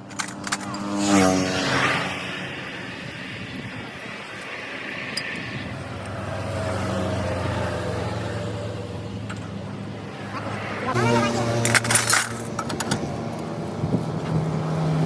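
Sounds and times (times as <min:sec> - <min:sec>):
motor humming: 0:09.2 - 0:14.7.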